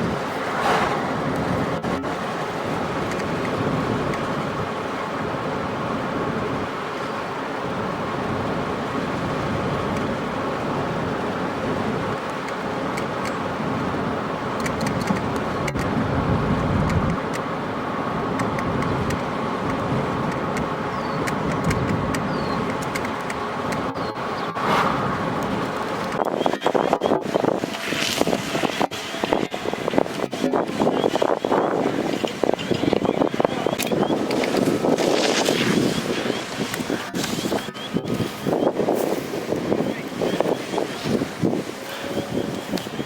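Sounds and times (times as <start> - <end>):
car driving road noise: 0.0 - 43.0.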